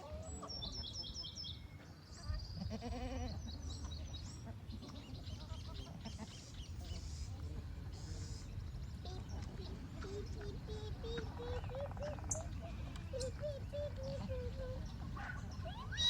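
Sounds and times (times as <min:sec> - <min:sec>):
small birds chirping: 0:03.3 - 0:16.0.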